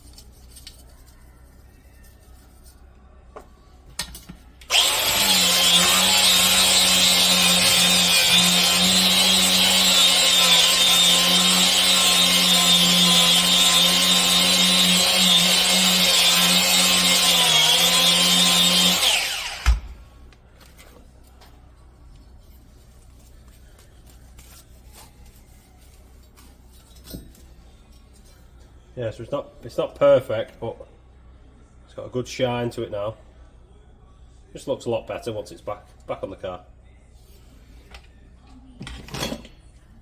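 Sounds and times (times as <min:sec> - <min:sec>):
grinder motor hum: 0:04.7 - 0:20.0.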